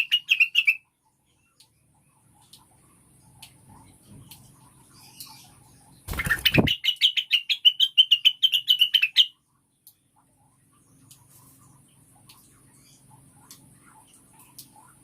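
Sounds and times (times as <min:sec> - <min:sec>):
bird fast sharp chirps: 0:06.1 - 0:09.3.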